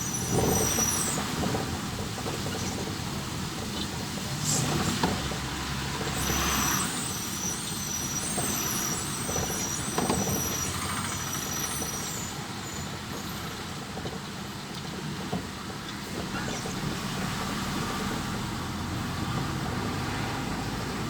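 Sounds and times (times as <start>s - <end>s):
thin high squeals: 0.0s - 14.7s
road traffic passing: 0.0s - 21.0s.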